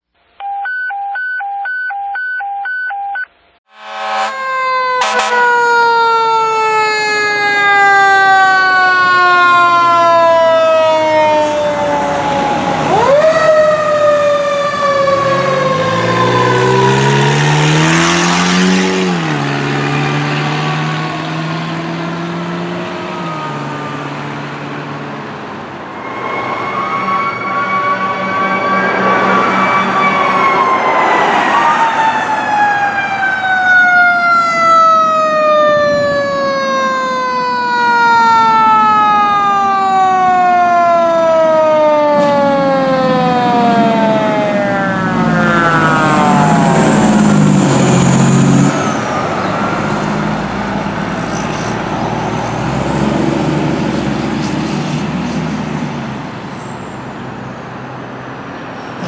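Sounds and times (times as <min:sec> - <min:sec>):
mechanical siren wailing: 0:03.7 - 0:24.6, 0:25.8 - 0:53.5
rising and falling siren: 0:03.7 - 0:59.0
diesel engine revving: 0:07.5 - 0:33.1, 0:42.1 - 0:57.6.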